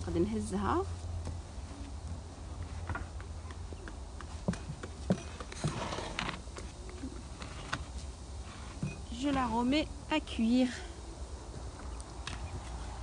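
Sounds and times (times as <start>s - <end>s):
rustling scrape: 5.5s - 6.4s, 7.3s - 8.8s.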